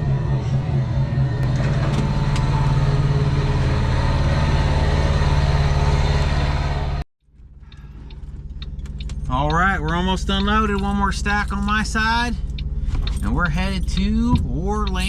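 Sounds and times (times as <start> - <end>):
quiet rising sound: 0.0 - 7.0
heavy vehicle engine running: 0.0 - 15.0.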